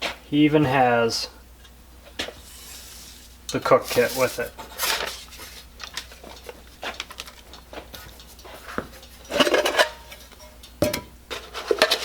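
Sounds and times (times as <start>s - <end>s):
metal cookware clanking: 9.2s - 12.0s.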